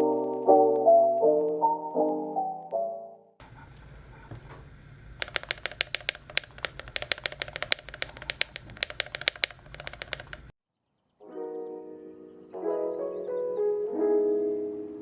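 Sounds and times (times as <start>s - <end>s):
mechanical keyboard typing: 5.2s - 10.5s.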